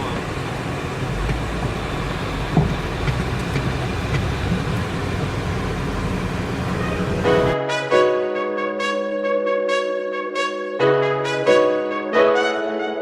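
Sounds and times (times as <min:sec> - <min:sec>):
car cabin engine rumble: 0:00.0 - 0:07.6.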